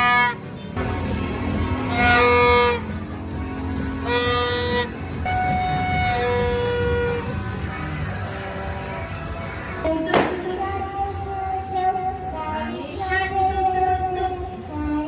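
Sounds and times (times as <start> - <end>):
horns tooting long notes: 0.0 - 9.1.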